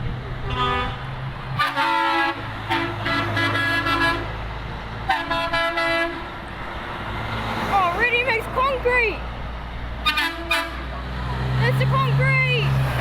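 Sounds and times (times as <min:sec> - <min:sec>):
truck engines running: 0:00.0 - 0:13.0
truck horns blasting: 0:00.4 - 0:04.4, 0:05.0 - 0:06.4, 0:10.0 - 0:12.7.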